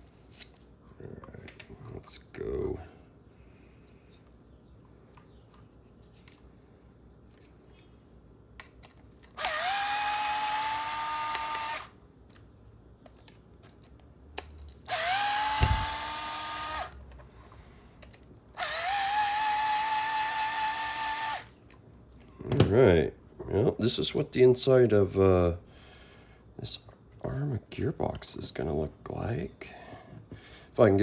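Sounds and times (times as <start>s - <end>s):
power driver whining: 9.3s - 12.0s, 14.9s - 17.0s, 18.6s - 21.5s
low thump: 15.6s - 16.0s.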